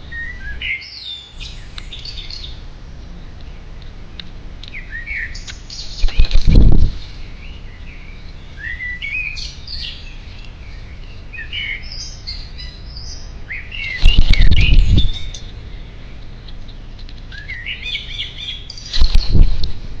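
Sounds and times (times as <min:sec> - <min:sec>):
songbird warbling: 0:00.0 - 0:02.6, 0:04.6 - 0:19.6.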